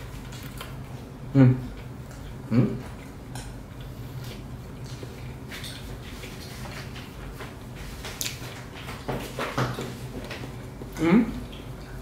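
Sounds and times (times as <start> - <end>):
person chewing: 0.0 - 9.4
steady low hum: 0.0 - 12.0.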